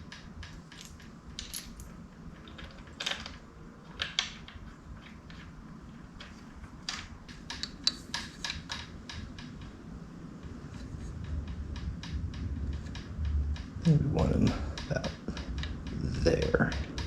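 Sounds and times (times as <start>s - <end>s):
tools clicking and knocking: 0.0s - 5.6s, 6.2s - 9.5s
faint low hum: 0.0s - 17.0s.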